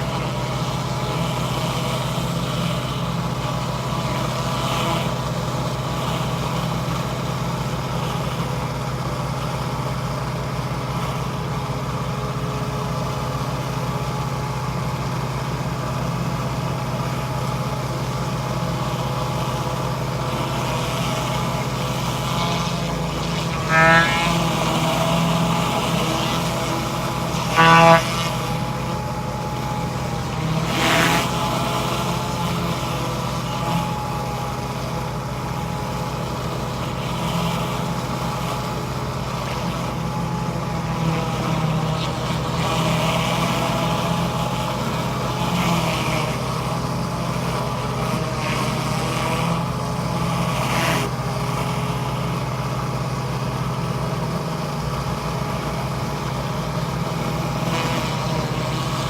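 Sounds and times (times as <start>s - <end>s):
pressure washer motor humming: 0.0s - 59.0s
loud toot: 18.8s - 35.1s.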